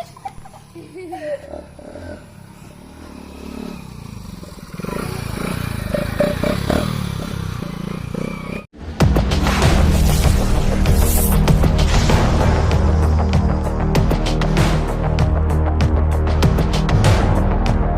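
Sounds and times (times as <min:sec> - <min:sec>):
motorcycle engine running: 0:00.0 - 0:08.7
loud music: 0:08.8 - 0:17.9.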